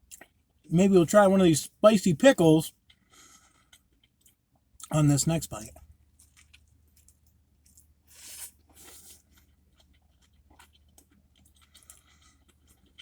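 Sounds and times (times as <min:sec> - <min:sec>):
soft chewing clicks: 0:00.0 - 0:00.7, 0:02.7 - 0:05.0, 0:05.6 - 0:08.0, 0:08.6 - 0:13.0
biting crispy food: 0:02.7 - 0:13.0.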